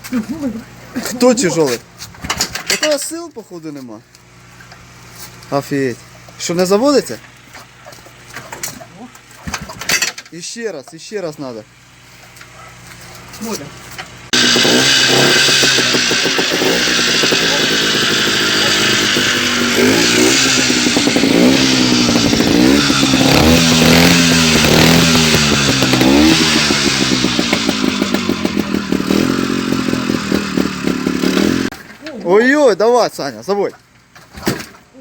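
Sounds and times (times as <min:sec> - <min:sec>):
motorcycle engine revving: 0:14.2 - 0:31.7.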